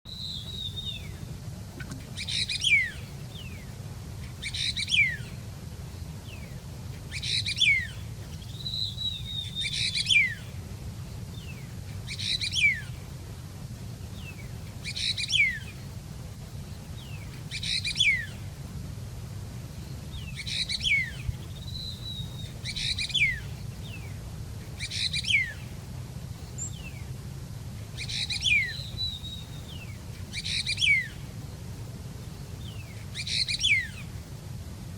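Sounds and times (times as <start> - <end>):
songbird chirping phrase: 0.1 - 10.6, 19.8 - 25.8, 28.0 - 31.3, 32.2 - 34.2
soft thin bird calls: 0.1 - 13.2, 14.0 - 18.6, 19.7 - 27.2, 27.8 - 31.4, 32.2 - 34.4
steady low hum: 0.1 - 34.9.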